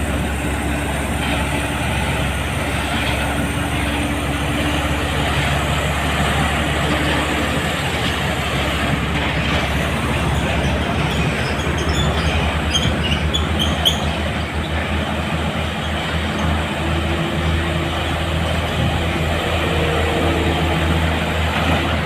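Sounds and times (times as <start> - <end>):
diesel truck engine rumble: 0.0 - 22.0
tyre and road noise: 0.0 - 22.0
short high squeaks: 10.6 - 14.4.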